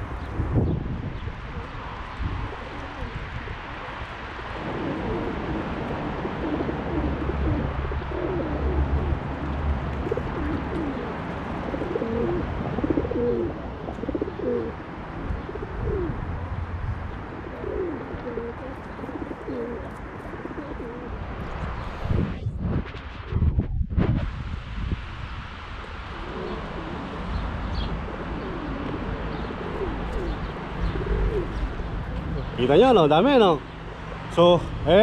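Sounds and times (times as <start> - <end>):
low bird calls: 17.0 - 22.0, 26.1 - 33.6
steady low rumble: 21.0 - 35.0.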